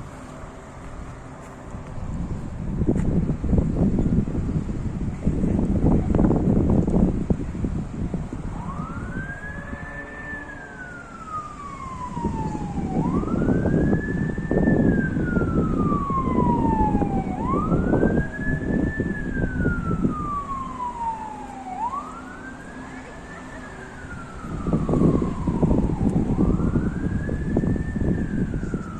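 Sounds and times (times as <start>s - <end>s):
wind buffeting microphone: 0.0s - 28.9s
siren wailing: 7.2s - 28.9s.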